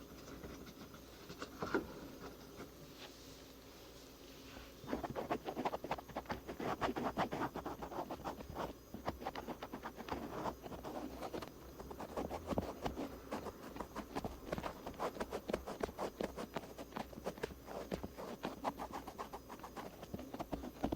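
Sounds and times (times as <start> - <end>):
cotton swabs scratching ear: 5.0 - 20.9.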